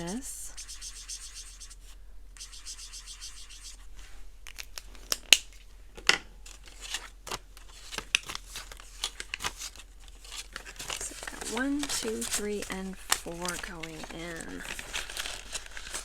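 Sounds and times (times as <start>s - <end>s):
paper bills rustling: 6.5s - 16.0s.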